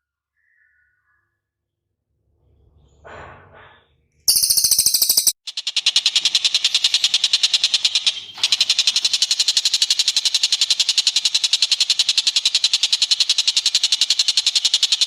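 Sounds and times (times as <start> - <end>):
bird high-pitched trill: 4.3 - 15.0.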